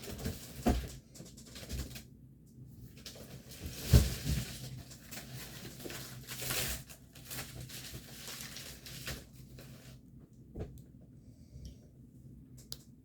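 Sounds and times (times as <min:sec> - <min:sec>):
plastic and paper crinkling: 0:03.0 - 0:10.0
packaging tearing: 0:04.8 - 0:09.3.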